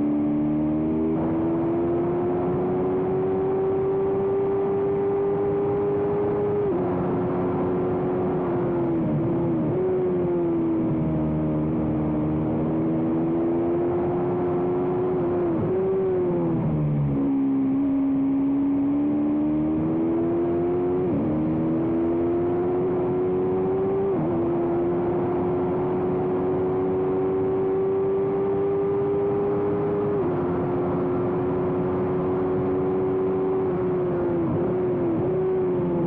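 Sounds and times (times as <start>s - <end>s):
motorcycle engine at high revs: 0.0s - 36.0s.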